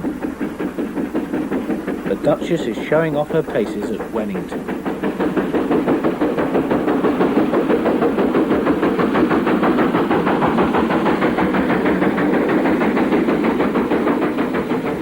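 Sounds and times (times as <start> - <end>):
steam locomotive exhaust beats: 0.0 - 15.0.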